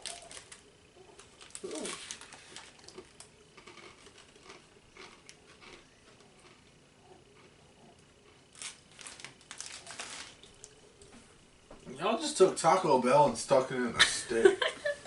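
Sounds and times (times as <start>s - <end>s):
plastic snack packet crinkling: 0.0s - 6.6s, 8.2s - 10.8s.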